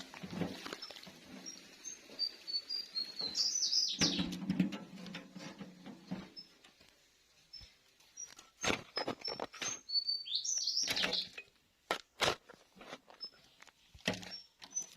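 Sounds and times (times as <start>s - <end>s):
small birds chirping: 0.6s - 4.4s, 7.4s - 11.5s, 13.1s - 14.9s.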